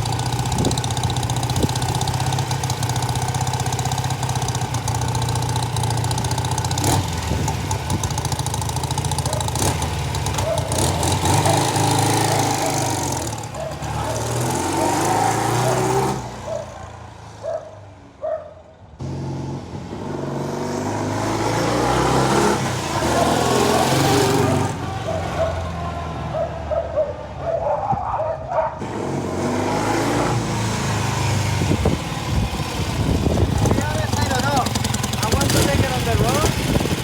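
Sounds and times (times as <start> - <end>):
motorcycle engine revving: 0.0 - 17.7, 18.9 - 26.9, 28.8 - 37.0
wind rush: 31.3 - 34.0.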